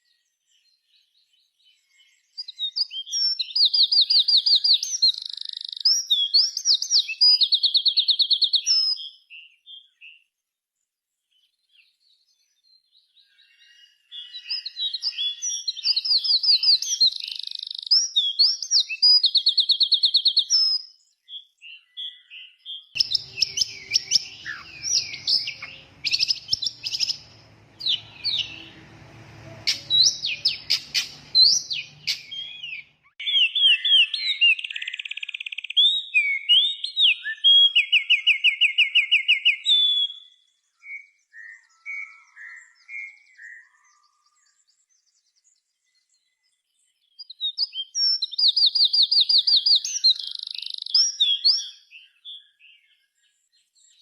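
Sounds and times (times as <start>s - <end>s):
songbird chirping and trilling: 0.0s - 54.0s.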